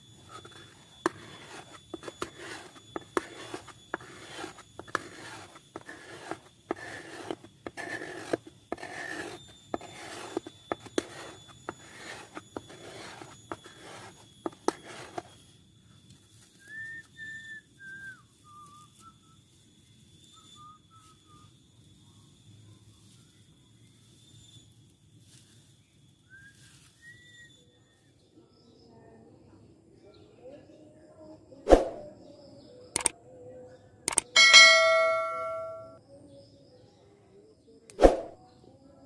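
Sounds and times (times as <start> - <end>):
knife scraping bamboo: 0.0 - 15.4.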